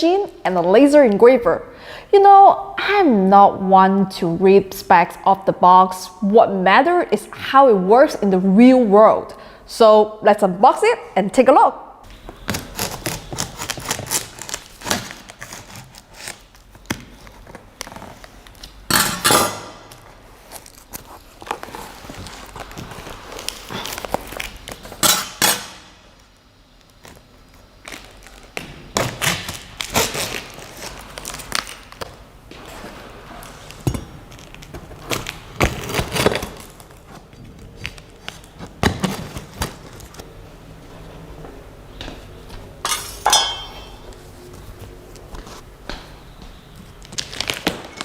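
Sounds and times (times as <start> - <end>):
knocks and clinks of parts set down: 42.8 - 44.0.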